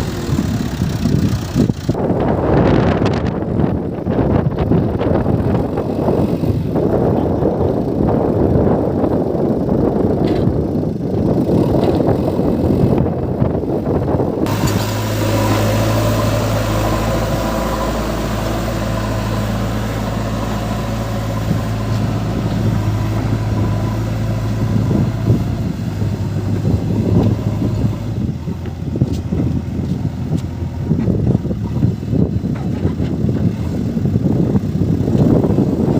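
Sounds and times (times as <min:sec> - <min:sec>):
diesel engine idling: 0:00.0 - 0:35.9
diesel machinery rumbling: 0:00.0 - 0:35.9
wind on microphone: 0:00.0 - 0:35.9.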